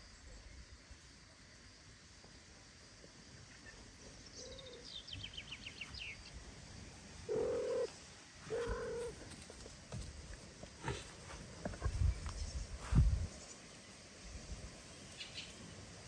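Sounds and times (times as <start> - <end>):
songbird trill: 3.3 - 9.9, 11.9 - 16.0.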